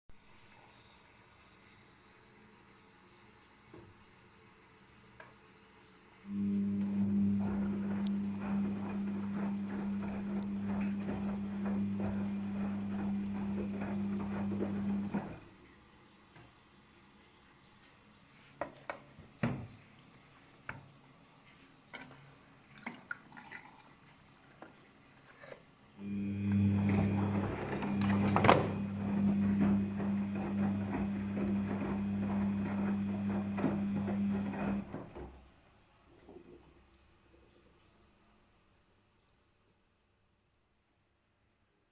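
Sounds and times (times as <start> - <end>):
washing machine electrical hum: 0.2 - 25.1, 25.9 - 38.3
washing machine motor humming: 6.3 - 15.5, 26.0 - 35.4.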